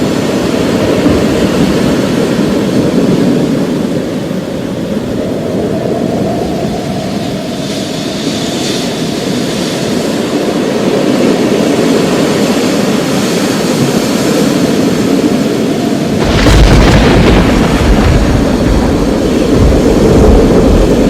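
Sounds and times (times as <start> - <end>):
rolling thunder: 0.0 - 7.5, 13.8 - 21.0.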